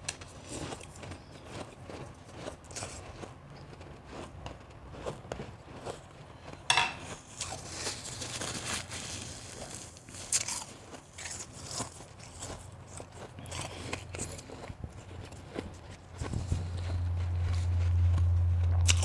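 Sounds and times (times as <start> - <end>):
ice being crunched and chewed: 0.0 - 19.0.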